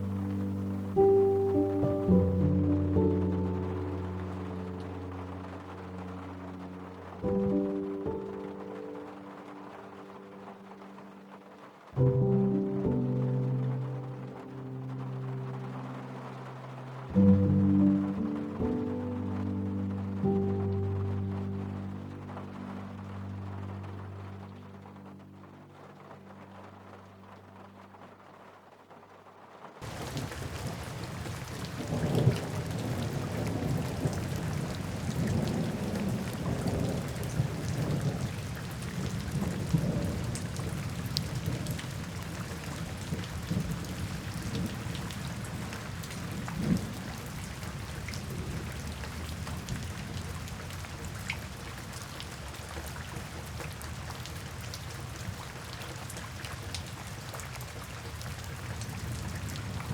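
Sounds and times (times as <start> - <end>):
soft music: 0.0 - 28.9, 29.8 - 57.7
steady rain falling: 0.0 - 59.9
low rolling thunder: 29.8 - 57.3, 58.1 - 59.9.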